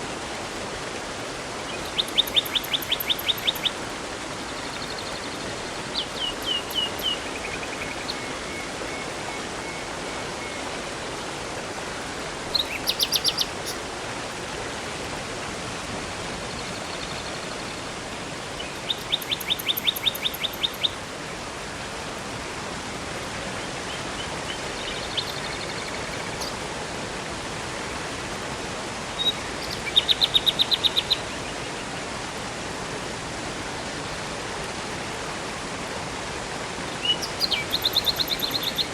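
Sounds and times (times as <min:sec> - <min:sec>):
rushing river and waterfall: 0:00.0 - 0:38.9
songbirds singing: 0:01.6 - 0:10.6, 0:12.5 - 0:13.8, 0:18.6 - 0:21.0, 0:23.6 - 0:26.6, 0:29.2 - 0:31.7, 0:36.9 - 0:38.9.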